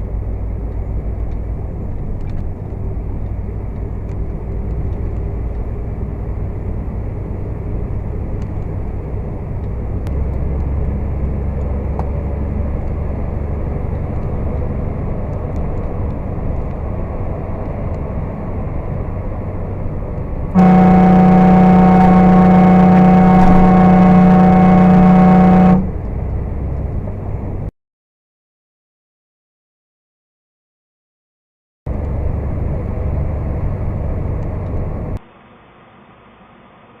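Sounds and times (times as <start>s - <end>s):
truck engine and road rumble: 0.0s - 27.7s, 31.9s - 35.2s.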